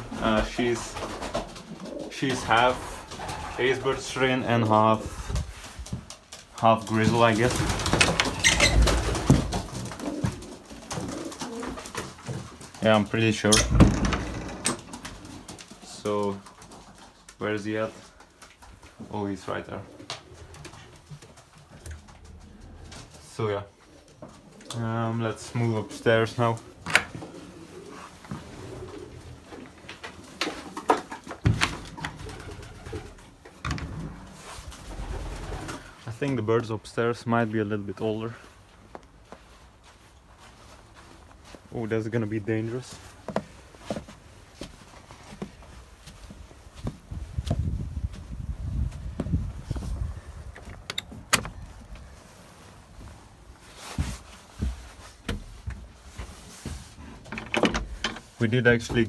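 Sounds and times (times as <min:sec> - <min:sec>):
pigeons cooing: 0:00.0 - 0:04.4, 0:07.4 - 0:12.7, 0:19.5 - 0:36.0
knocks and thumps of handling: 0:30.5 - 0:32.2, 0:53.8 - 0:59.0.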